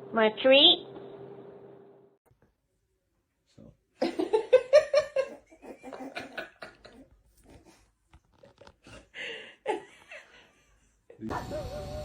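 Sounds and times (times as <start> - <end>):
person laughing: 4.0 - 7.2.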